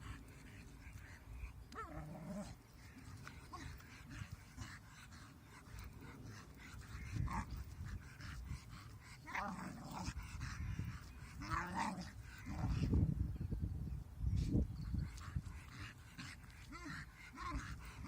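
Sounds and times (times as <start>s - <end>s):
dog growling low: 1.7s - 2.6s, 5.7s - 10.6s, 11.3s - 13.0s.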